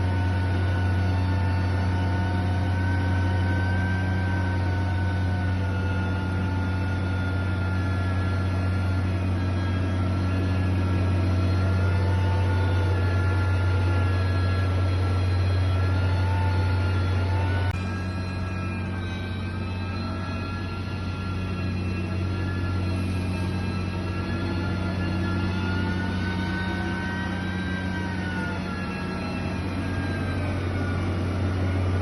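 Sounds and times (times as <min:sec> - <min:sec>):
faint engine whine: 0:00.0 - 0:32.0
heavy machinery diesel engine: 0:00.0 - 0:32.0.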